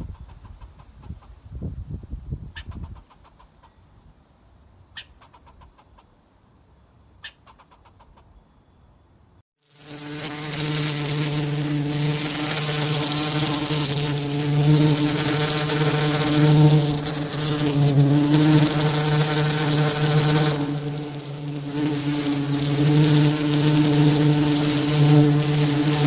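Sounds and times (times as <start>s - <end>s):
flying insect buzzing: 9.6s - 26.0s.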